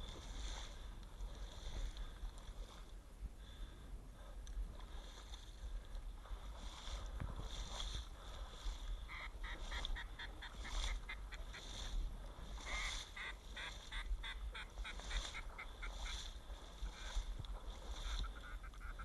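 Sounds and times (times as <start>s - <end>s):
wind rumble on microphone: 0.0s - 19.0s
duck quacks: 9.1s - 11.9s, 12.6s - 17.2s, 17.9s - 19.0s.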